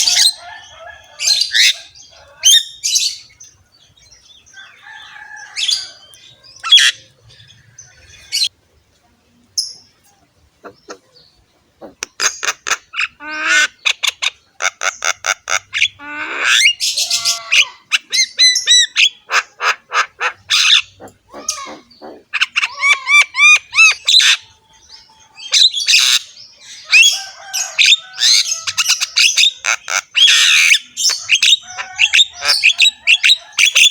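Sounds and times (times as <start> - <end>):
myna bird chattering song: 9.6 - 33.9.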